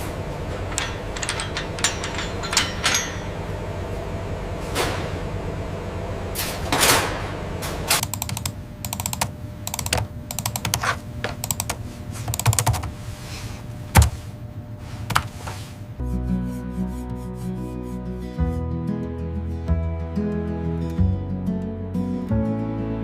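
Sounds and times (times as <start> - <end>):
steady low hum: 0.0 - 18.7.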